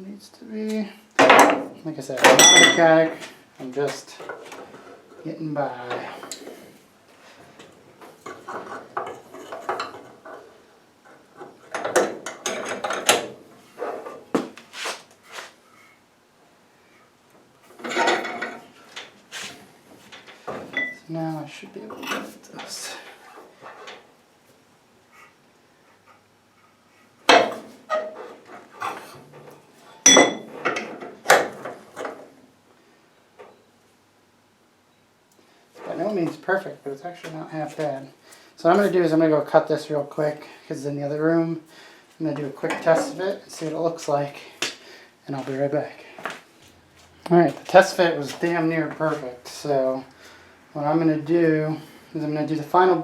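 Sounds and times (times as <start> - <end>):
metal clanks and knocks: 1.2 - 3.1, 11.4 - 13.3, 17.8 - 18.6, 27.3 - 32.2
metal clanking and scraping: 17.7 - 18.7.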